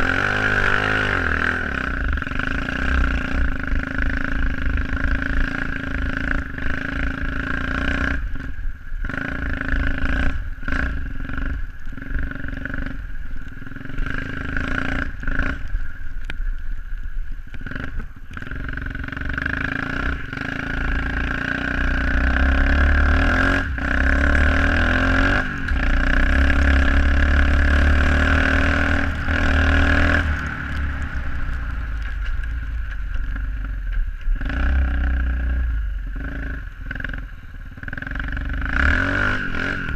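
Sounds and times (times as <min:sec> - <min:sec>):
pit bike engine running: 0:17.5 - 0:39.9.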